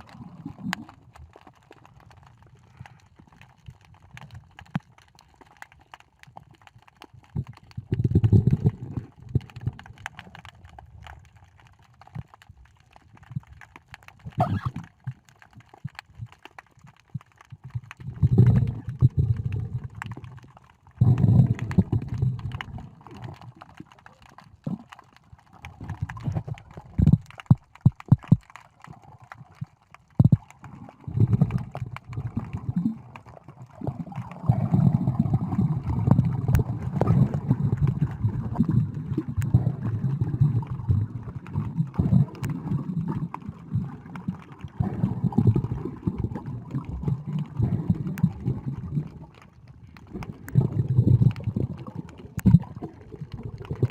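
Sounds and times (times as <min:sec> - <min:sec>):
muffled underwater sloshing: 0:14.2 - 0:53.9.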